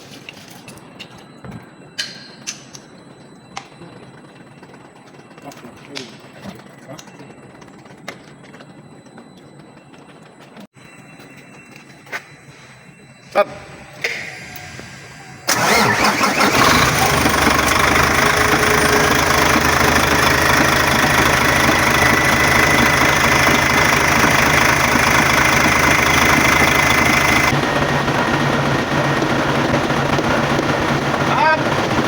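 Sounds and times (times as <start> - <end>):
diesel truck engine starting: 14.0 - 32.0
truck engine idling: 15.5 - 32.0.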